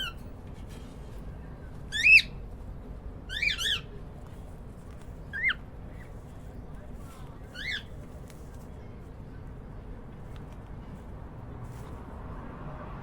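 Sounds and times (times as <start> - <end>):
cockatiels chirping: 1.9 - 2.4, 3.3 - 3.9, 5.3 - 6.1, 7.5 - 8.0.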